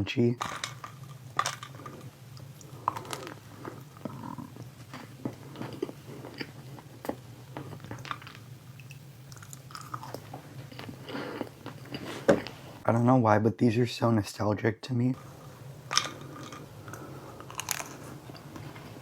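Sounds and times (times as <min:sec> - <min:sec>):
chocolate coating crunching: 0:00.4 - 0:12.1, 0:15.2 - 0:19.0
chewing and biting: 0:01.5 - 0:12.2, 0:16.0 - 0:18.8
soft mouth sounds: 0:01.8 - 0:08.0.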